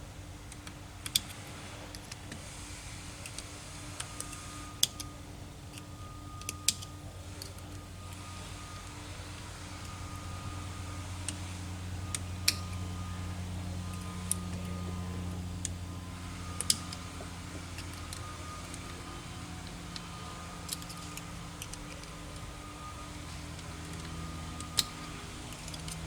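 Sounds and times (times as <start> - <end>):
steady low hum: 0.0 - 26.0
metal clicks and taps of tools: 0.5 - 2.4, 16.6 - 17.0.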